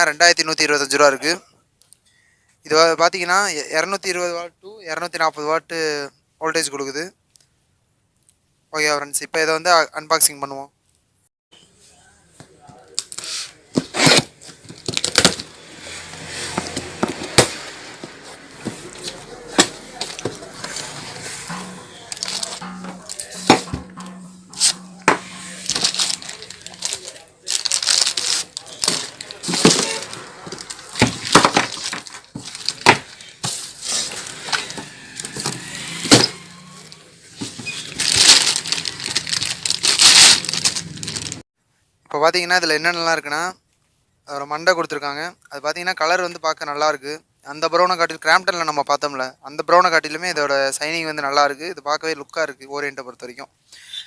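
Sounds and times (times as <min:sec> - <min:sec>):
cardboard rustling and scraping: 0:13.2 - 0:36.8, 0:37.4 - 0:41.4
cardboard and plastic knocking: 0:28.8 - 0:33.2.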